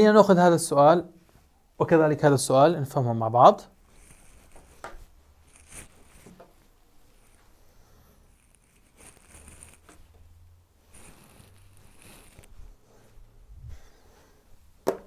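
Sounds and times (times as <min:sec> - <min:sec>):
faint scratching and tapping: 0:03.8 - 0:13.2.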